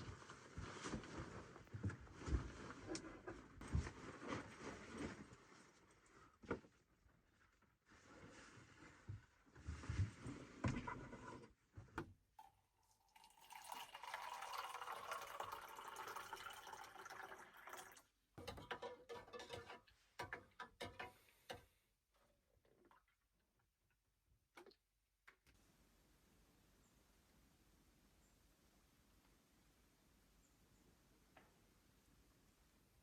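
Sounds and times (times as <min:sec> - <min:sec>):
water pouring into container: 0:12.4 - 0:18.2
light knocks and clatter: 0:18.4 - 0:21.6.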